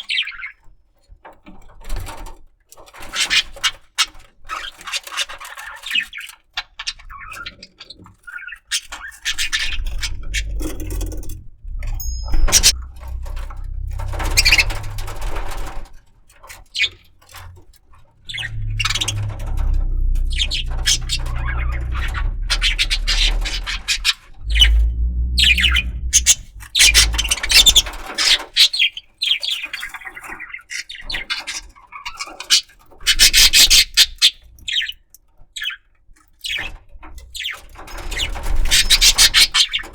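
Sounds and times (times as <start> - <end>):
low rumble: 9.6 - 16.2, 17.3 - 28.2.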